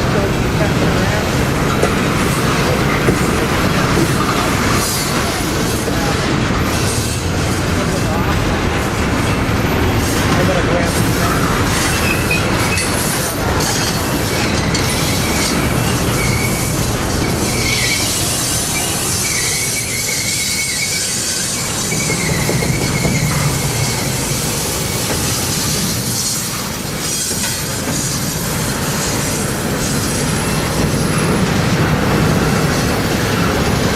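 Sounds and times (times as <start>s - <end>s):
train wheels rumbling on rail: 0.0s - 33.9s
high wheel squeal: 11.2s - 31.3s.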